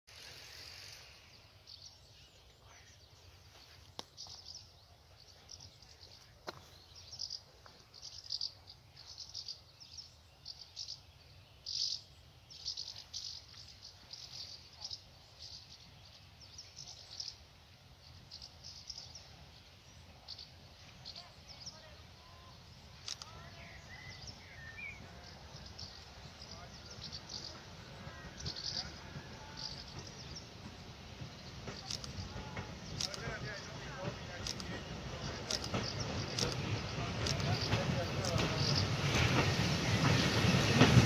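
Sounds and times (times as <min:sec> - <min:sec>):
faint bird chirping: 0:00.1 - 0:41.0
sharp clicks: 0:23.0 - 0:23.4, 0:31.6 - 0:40.2.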